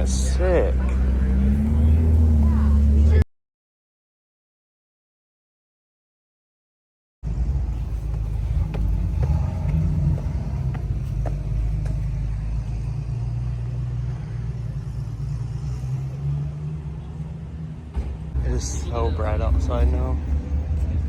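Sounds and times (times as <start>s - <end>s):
car engine running: 7.4s - 12.8s.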